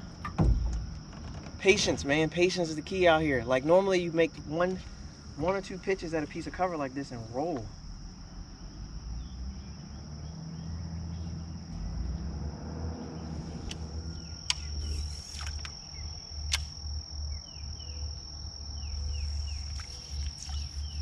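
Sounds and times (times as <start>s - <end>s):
high-pitched insect chorus: 0.0s - 21.0s
sharp clicks: 13.6s - 15.8s, 16.5s - 16.8s.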